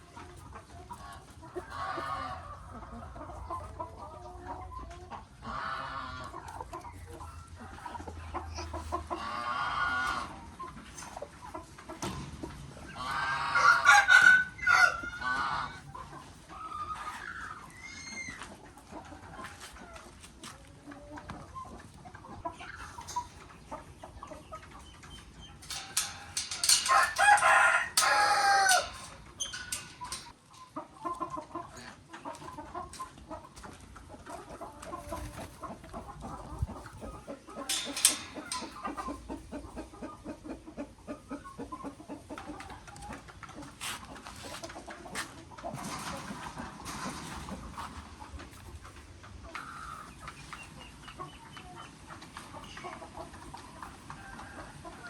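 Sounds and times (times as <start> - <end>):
hens clucking: 0.0 - 55.0
hens squawking: 0.3 - 43.2
rooster crowing: 13.3 - 15.3, 26.7 - 29.2.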